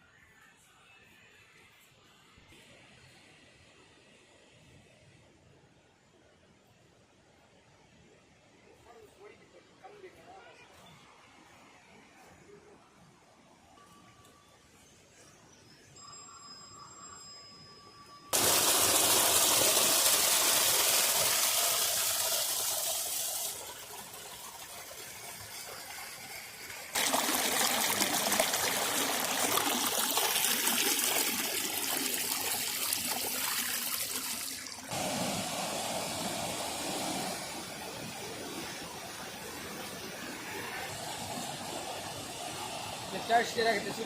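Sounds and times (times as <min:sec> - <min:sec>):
thin steady tones: 0:12.2 - 0:35.0
rushing water: 0:18.4 - 0:44.0.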